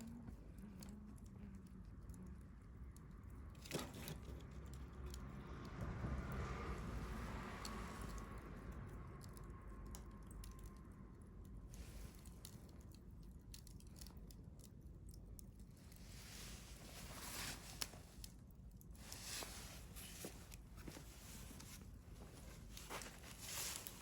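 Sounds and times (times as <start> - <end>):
campfire crackling: 6.3 - 24.0.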